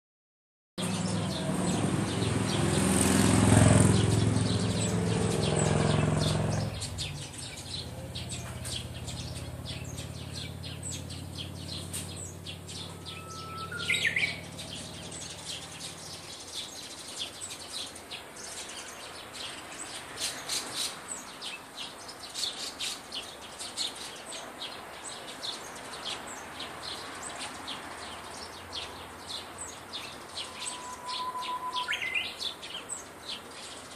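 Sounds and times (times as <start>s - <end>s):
motor vehicle passing: 0.8s - 21.2s, 24.6s - 33.7s
small birds chirping: 0.8s - 33.9s
warbler whistling song: 3.8s - 33.9s.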